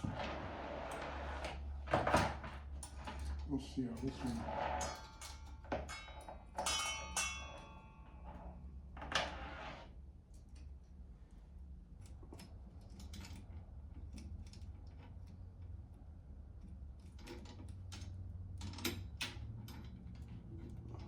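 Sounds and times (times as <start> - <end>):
metal tools clinking: 4.0 - 8.4.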